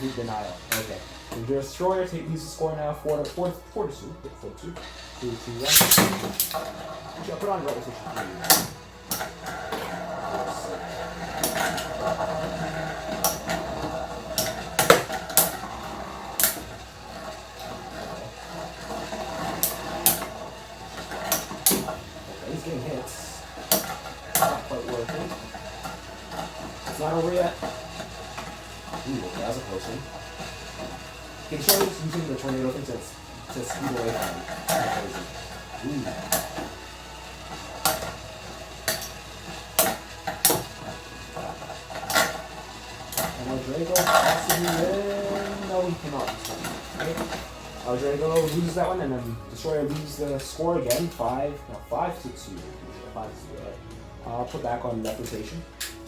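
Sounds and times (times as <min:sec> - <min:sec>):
metal tops clacking together: 0:00.0 - 0:56.0
spinning tops whirring: 0:00.0 - 0:56.0
sharp metallic clashes: 0:05.2 - 0:09.9.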